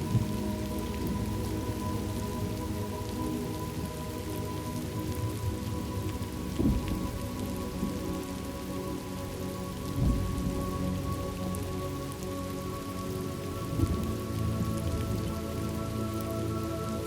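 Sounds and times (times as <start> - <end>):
low rumbles: 0.0 - 12.2
steady rain falling: 0.0 - 17.0.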